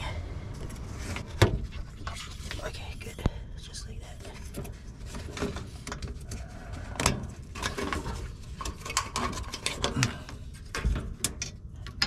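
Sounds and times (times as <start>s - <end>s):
tools clicking and knocking: 7.0s - 12.0s.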